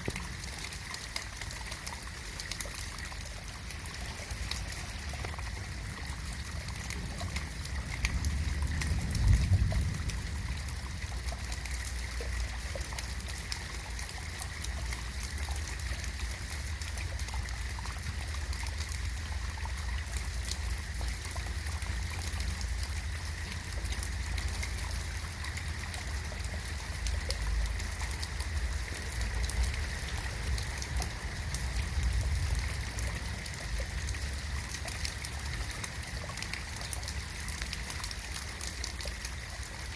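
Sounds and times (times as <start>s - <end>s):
rain patter: 0.0s - 39.9s
low rumble: 5.7s - 12.0s.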